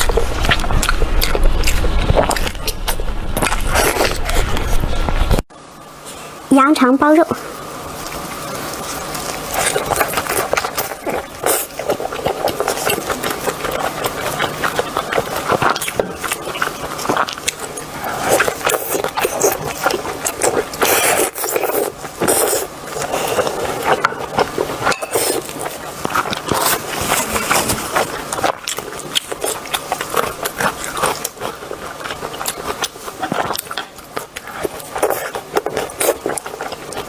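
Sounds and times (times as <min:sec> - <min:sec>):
wet chewing and smacking: 0:07.9 - 0:37.0.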